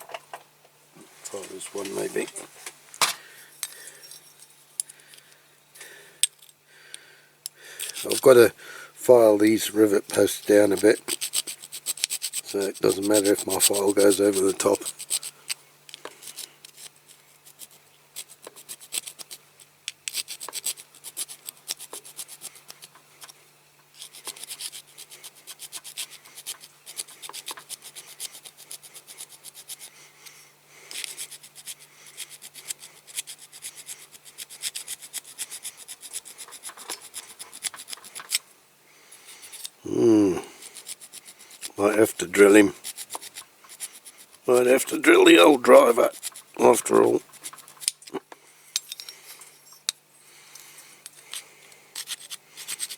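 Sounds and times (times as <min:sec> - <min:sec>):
hand file rasping on metal: 0:07.8 - 0:08.4, 0:10.5 - 0:15.4, 0:20.1 - 0:23.4, 0:24.0 - 0:29.9, 0:30.9 - 0:38.4, 0:39.3 - 0:39.8, 0:40.5 - 0:47.9, 0:52.0 - 0:52.9.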